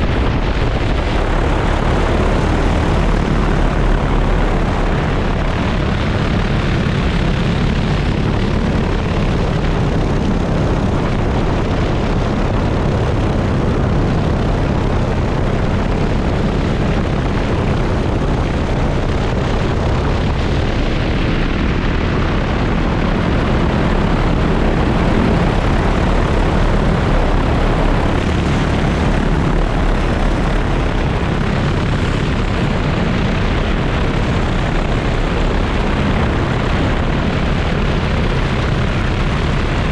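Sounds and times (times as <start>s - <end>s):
drone propellers whirring: 0.0s - 9.3s, 19.0s - 37.1s.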